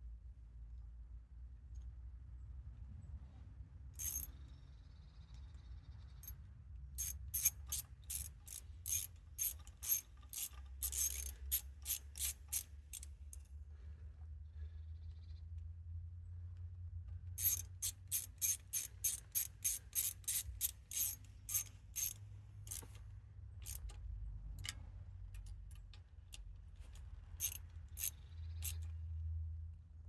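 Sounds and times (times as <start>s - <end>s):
hand ratchet clicking: 4.0s - 4.3s, 7.0s - 13.4s, 17.4s - 23.0s, 23.6s - 23.9s, 27.4s - 28.8s.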